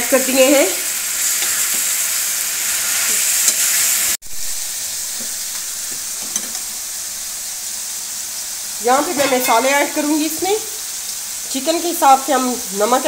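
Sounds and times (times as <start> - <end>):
food sizzling in ghee: 0.0 - 13.0
metal ladle scraping a pan: 9.0 - 10.2.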